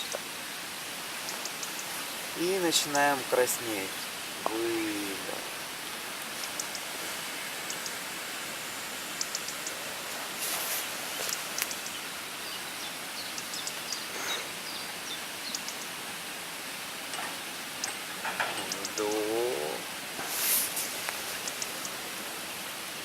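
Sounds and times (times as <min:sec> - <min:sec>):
outdoor background hiss: 0:00.0 - 0:23.0
faint clicks: 0:01.3 - 0:01.9, 0:06.4 - 0:06.9, 0:09.2 - 0:09.8, 0:11.2 - 0:12.0, 0:21.0 - 0:22.0.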